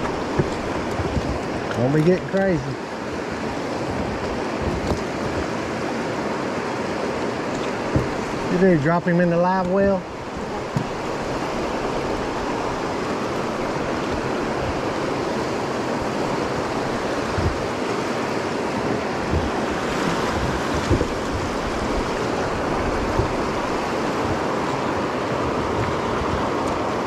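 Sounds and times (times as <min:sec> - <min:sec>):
river water rushing over rocks: 0:00.0 - 0:27.0
short low knocks: 0:07.8 - 0:08.3.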